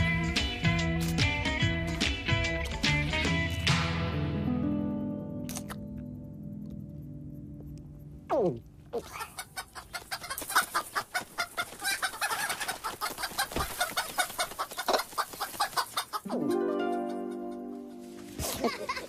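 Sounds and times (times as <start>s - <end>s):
music: 0.0s - 8.3s, 16.3s - 19.0s
rapid chicken clucking: 9.0s - 19.0s.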